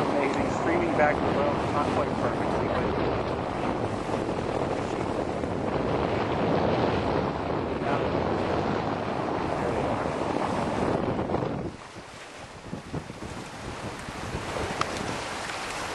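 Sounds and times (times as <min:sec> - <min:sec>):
water washing along hull: 0:00.0 - 0:15.9
wind buffeting microphone: 0:00.0 - 0:15.9.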